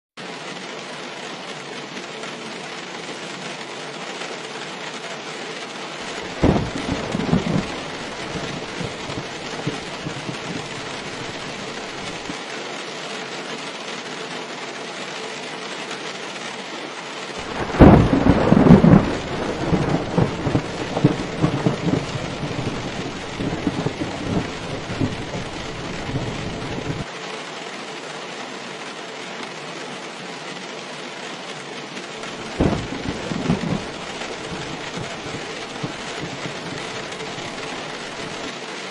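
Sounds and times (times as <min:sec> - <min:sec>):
heavy rain: 0:00.2 - 0:38.9
thunderclap rumbling: 0:06.1 - 0:12.4, 0:17.4 - 0:27.1, 0:32.2 - 0:38.5.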